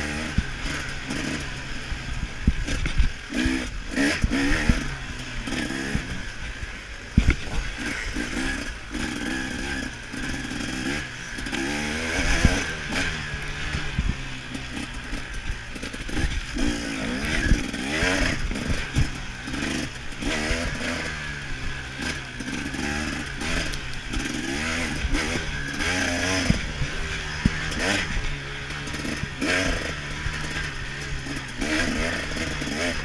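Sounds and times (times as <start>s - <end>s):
motorbike engine revving: 0.0s - 33.0s
bike knocks and clatter: 7.1s - 7.8s.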